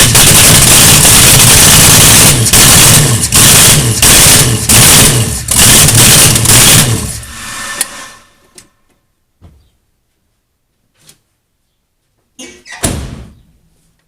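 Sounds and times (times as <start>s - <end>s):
loud car engine surging: 0.0s - 8.5s.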